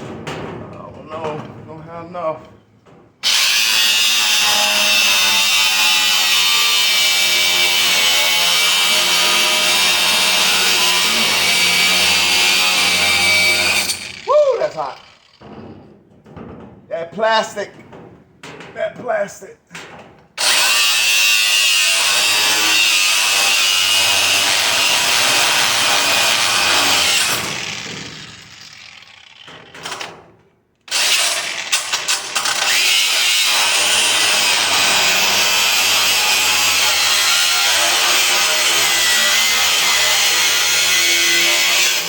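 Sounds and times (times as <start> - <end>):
angle grinder cutting steel: 3.2 - 15.4, 20.4 - 30.0, 30.9 - 42.0.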